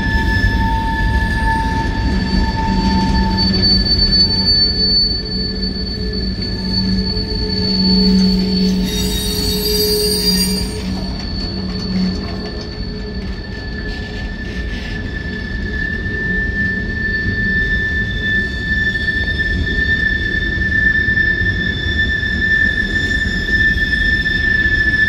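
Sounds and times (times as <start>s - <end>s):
wheels rumbling on rails: 0.0s - 19.7s
freight car wheels squealing: 0.0s - 25.0s.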